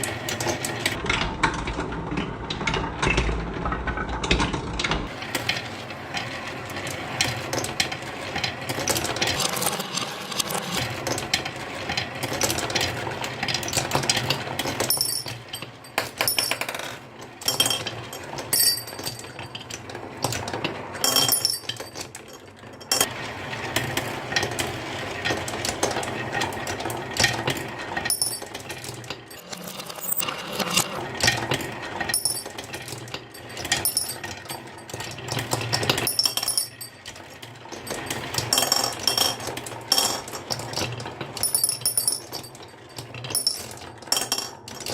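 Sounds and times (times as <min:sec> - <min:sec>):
marbles rolling down a wooden track: 0:04.0 - 0:44.9
marbles clicking against track: 0:06.7 - 0:23.1, 0:25.3 - 0:31.0.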